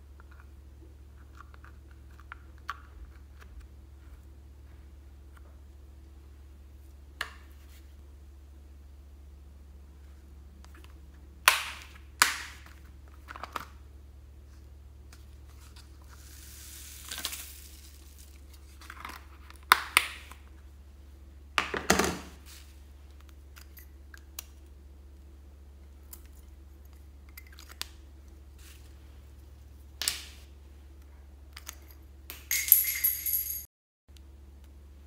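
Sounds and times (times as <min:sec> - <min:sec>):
foam beads pouring into bowl: 0:16.1 - 0:18.5.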